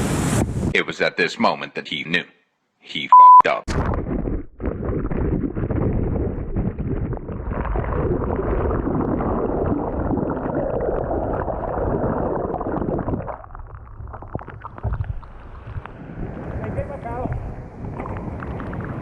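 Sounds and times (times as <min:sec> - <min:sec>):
surf churning and gurgling: 0:14.3 - 0:19.0.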